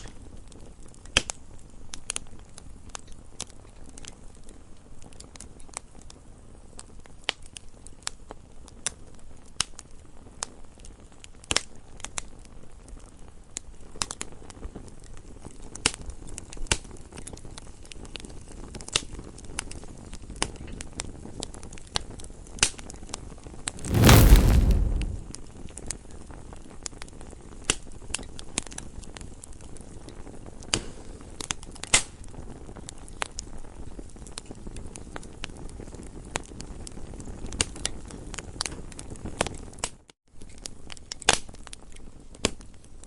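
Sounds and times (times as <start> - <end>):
low rumble of burning: 23.8 - 25.4
wood fire crackling and popping: 23.8 - 25.4.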